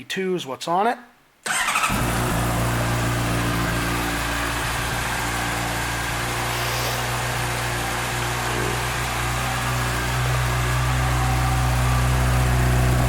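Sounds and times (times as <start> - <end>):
motorcycle engine starting and idling: 1.5 - 13.0.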